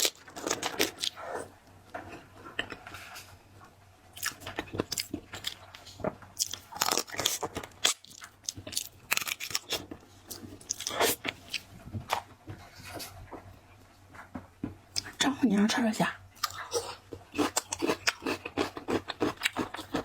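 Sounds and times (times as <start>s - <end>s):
crunching and chewing seafood: 0.0s - 3.4s, 4.1s - 13.1s, 16.4s - 20.0s.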